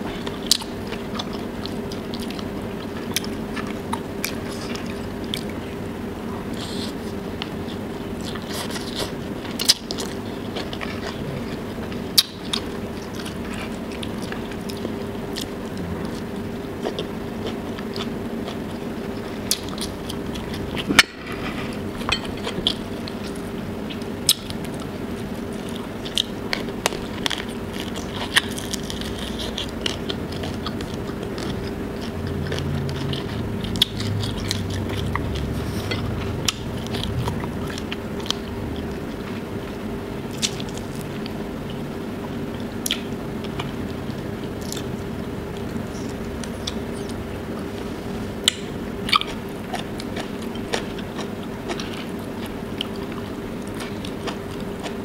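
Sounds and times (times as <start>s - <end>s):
chewing and mouth sounds: 0.1s - 39.5s, 40.2s - 55.0s
low hum: 9.3s - 49.7s.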